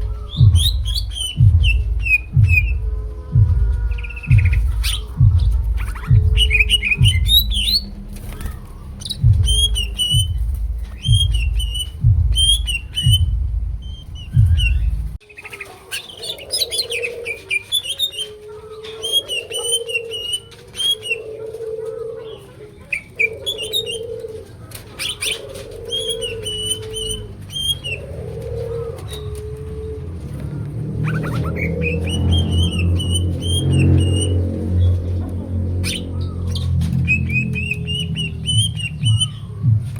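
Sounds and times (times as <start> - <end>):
deep pulsing thump: 0.0 - 15.2, 30.2 - 39.9
bird singing high chirping phrases: 0.0 - 21.3, 24.9 - 28.1, 30.6 - 39.7
lower repeated bird call: 0.0 - 30.4, 35.8 - 39.7.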